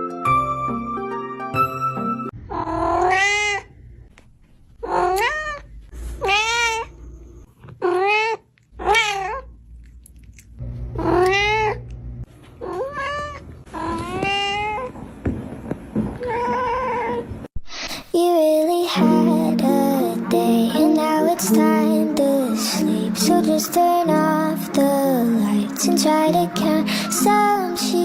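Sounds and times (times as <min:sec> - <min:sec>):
cat meowing: 0:02.5 - 0:03.7, 0:04.8 - 0:06.9, 0:07.8 - 0:09.5, 0:11.0 - 0:11.8, 0:12.6 - 0:14.9.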